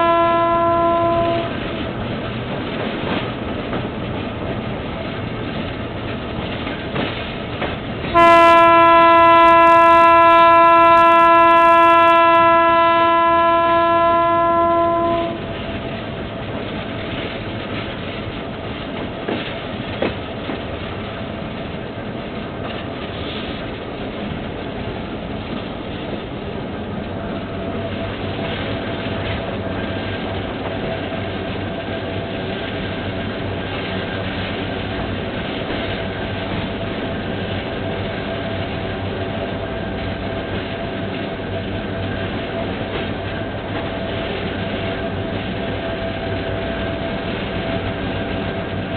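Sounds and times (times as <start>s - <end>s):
locomotive horn blast: 0.0s - 1.6s, 8.1s - 15.5s
train rumbling and clattering on track: 0.0s - 48.9s.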